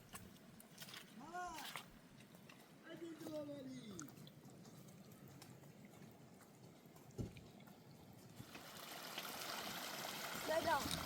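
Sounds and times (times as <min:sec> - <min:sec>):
faint running water: 0:03.2 - 0:11.0.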